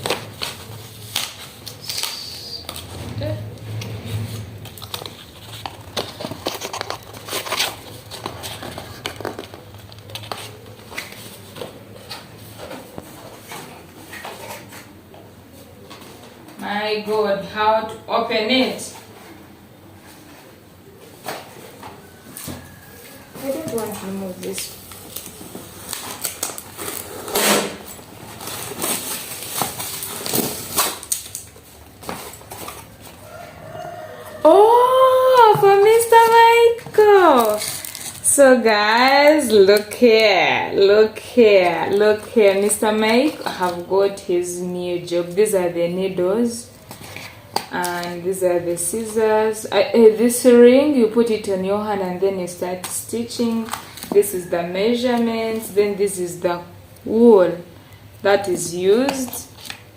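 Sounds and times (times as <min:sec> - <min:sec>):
packaging crinkling and rustling: 0:00.0 - 0:03.1, 0:03.7 - 0:15.0, 0:21.1 - 0:40.0, 0:52.8 - 0:55.8, 0:59.0 - 0:59.9.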